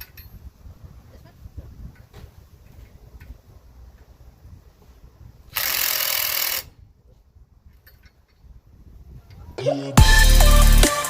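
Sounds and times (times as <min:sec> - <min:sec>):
impact wrench burst: 0:05.5 - 0:06.7.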